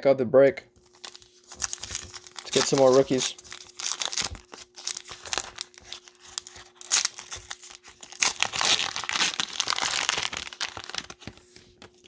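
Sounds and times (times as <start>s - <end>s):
plastic wrapper crinkling and tearing: 0.8s - 12.0s.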